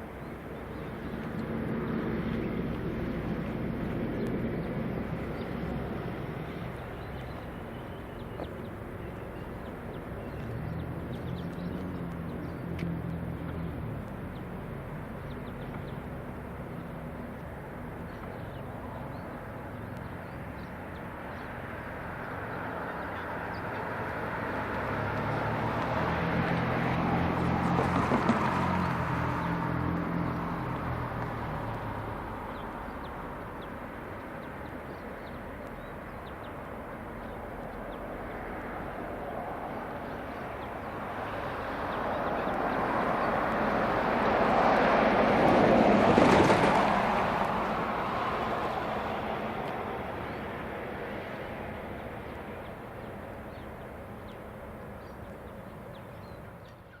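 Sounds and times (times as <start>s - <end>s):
diesel engines: 0.0s - 57.0s
vehicle passing by: 20.6s - 33.9s, 37.2s - 54.6s.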